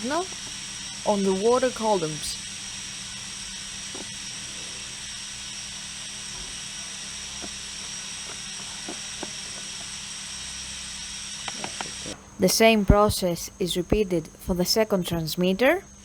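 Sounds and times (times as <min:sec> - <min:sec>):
compressed air hissing: 0:00.0 - 0:13.7.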